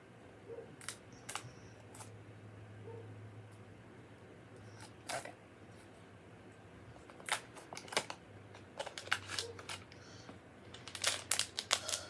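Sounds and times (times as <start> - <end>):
packaging clicking and crackling: 7.0 - 10.0, 10.7 - 12.0.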